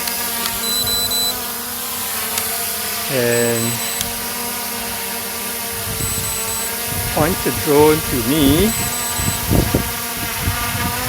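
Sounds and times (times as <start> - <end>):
drone propellers buzzing: 0.1 - 2.4, 3.1 - 4.3, 5.8 - 10.8.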